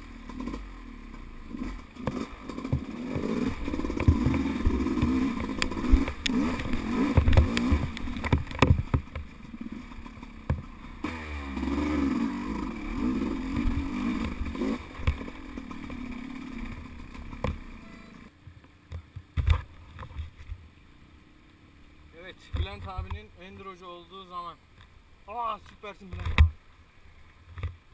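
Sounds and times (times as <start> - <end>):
motorcycle engine revving: 0.0 - 18.3
thumps: 2.0 - 10.7.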